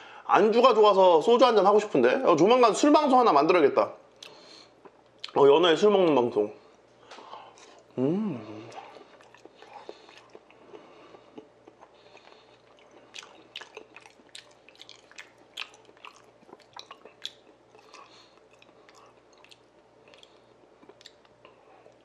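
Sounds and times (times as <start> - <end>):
person chewing wet food: 7.3 - 22.0.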